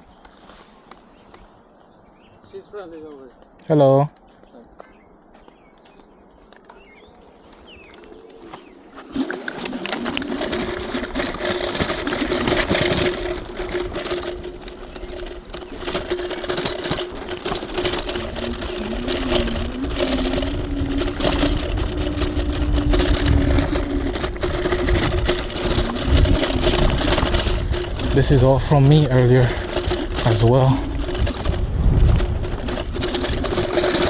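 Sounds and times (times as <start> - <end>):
wavering whine: 7.1 - 29.4
electric motor whine: 7.3 - 34.0
small rattles and knocks: 7.8 - 34.0
wind rumble on microphone: 9.3 - 34.0.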